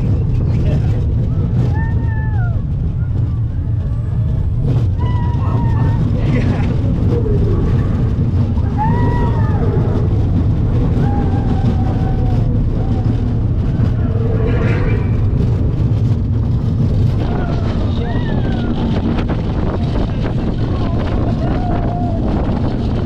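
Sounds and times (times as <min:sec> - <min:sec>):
roller coaster rumbling on track: 0:00.0 - 0:23.0
short gliding higher sounds: 0:13.1 - 0:17.2.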